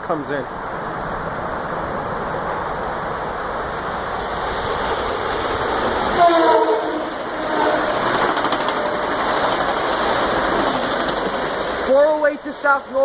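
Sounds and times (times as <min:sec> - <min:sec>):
electric train passing: 0:00.0 - 0:13.0
train horn blast: 0:06.2 - 0:08.2.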